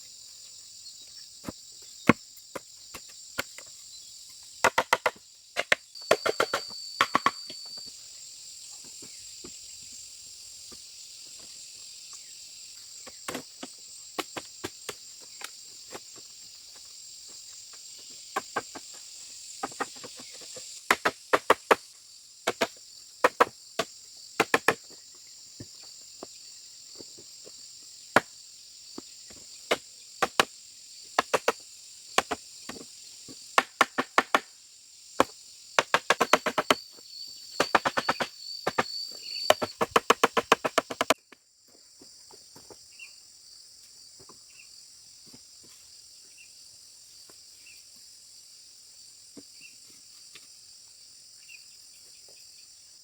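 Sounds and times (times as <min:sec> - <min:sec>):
crickets and insects droning: 0:00.0 - 0:53.0
faint insect chirp: 0:00.0 - 0:53.0
tool knocking on bamboo: 0:04.6 - 0:07.4, 0:33.6 - 0:34.5, 0:35.2 - 0:36.8, 0:37.6 - 0:38.9, 0:39.5 - 0:41.2.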